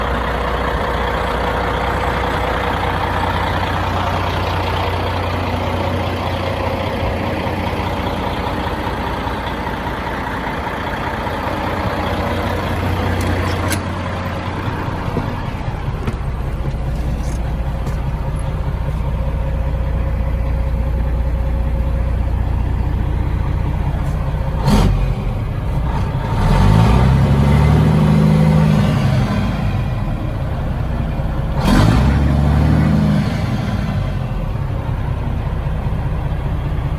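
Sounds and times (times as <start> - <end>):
diesel truck engine idling: 0.0 - 36.9
engine revving: 23.6 - 30.6, 31.4 - 34.9.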